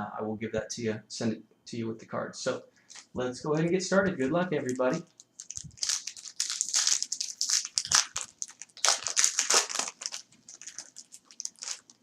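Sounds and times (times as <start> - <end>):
plastic wrapper tearing and crinkling: 4.7 - 12.0.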